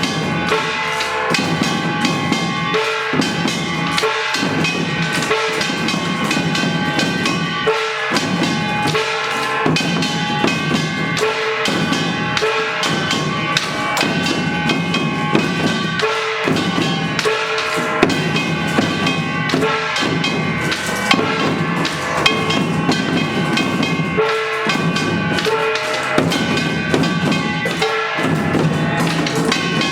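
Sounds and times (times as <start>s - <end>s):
drums struck in fast rhythm: 0.0s - 29.9s
gongs clanging: 0.0s - 29.9s.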